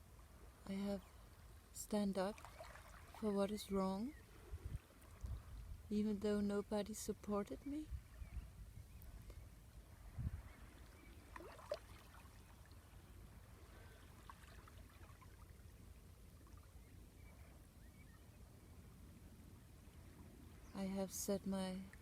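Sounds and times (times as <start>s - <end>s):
wind: 0.0s - 22.0s
water rumbling: 10.0s - 16.8s.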